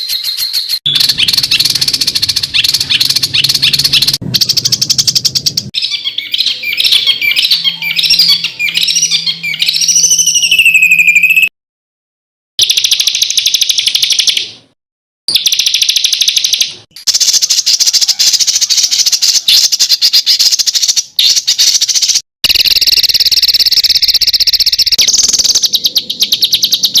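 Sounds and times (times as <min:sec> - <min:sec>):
songbird rapid trills: 0:00.5 - 0:07.7, 0:21.5 - 0:26.8.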